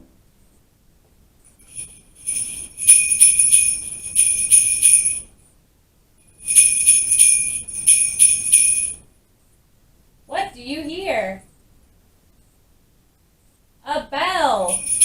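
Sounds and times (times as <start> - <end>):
bell jingling: 1.5 - 5.3, 6.2 - 9.1, 14.6 - 15.0.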